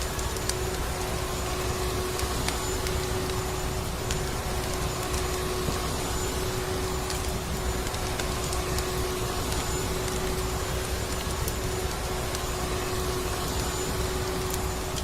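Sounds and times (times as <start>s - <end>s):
faint wood fire crackles: 0.0s - 15.0s.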